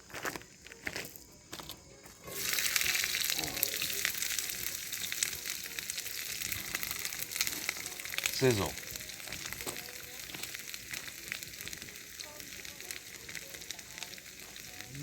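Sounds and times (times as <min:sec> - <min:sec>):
spitting oil crackles: 0:02.1 - 0:15.0
vegetables sizzling in hot oil: 0:02.2 - 0:15.0.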